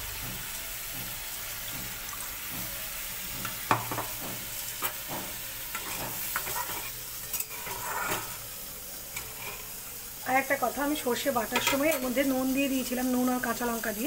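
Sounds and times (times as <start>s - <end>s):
masala sizzling in a pan: 0.0s - 14.0s
spatula scraping and knocking pan: 1.7s - 8.5s, 9.1s - 9.8s, 11.4s - 12.2s.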